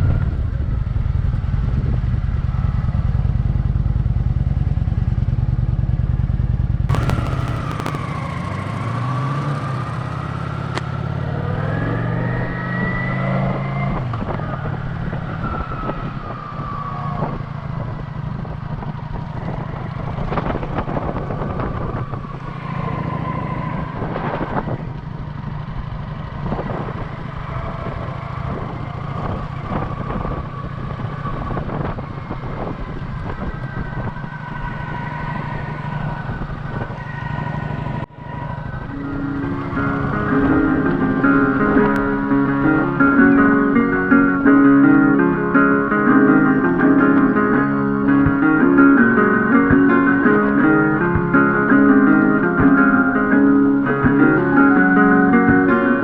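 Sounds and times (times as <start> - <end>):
motorcycle engine accelerating: 0.0 - 56.0
wind on microphone: 13.8 - 25.0, 26.4 - 37.1.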